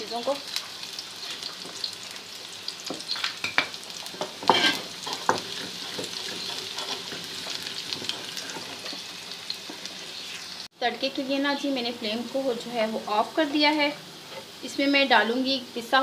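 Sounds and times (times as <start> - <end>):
garlic and onion sizzling: 0.0 - 16.0
stirring scrapes in pan: 4.1 - 10.7.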